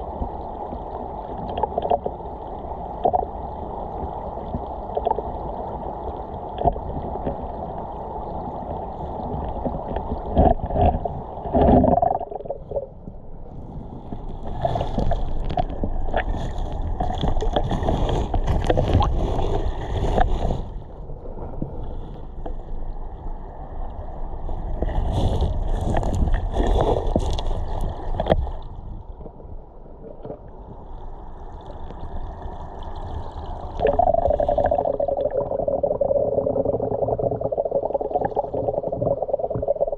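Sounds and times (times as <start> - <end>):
water gurgling and sloshing: 0.0 - 39.9.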